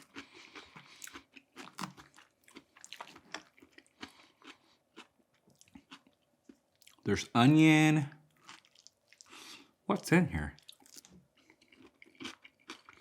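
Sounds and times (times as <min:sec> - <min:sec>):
chewing shrimp: 0:00.0 - 0:07.3, 0:08.1 - 0:09.8, 0:10.5 - 0:13.0.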